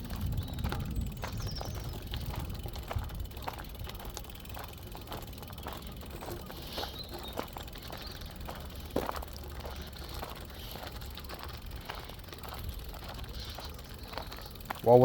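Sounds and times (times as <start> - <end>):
bicycle clicks and rattles: 0.0 - 15.0
bicycle rolling rumble: 0.0 - 15.0.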